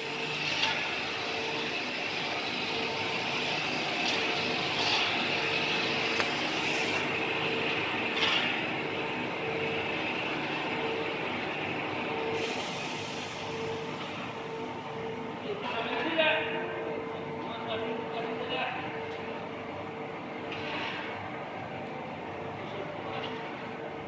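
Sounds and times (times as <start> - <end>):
compactor machine humming: 0.0 - 17.6.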